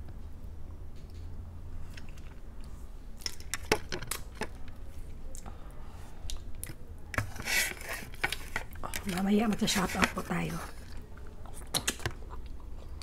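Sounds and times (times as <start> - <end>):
chewing: 10.7 - 13.0.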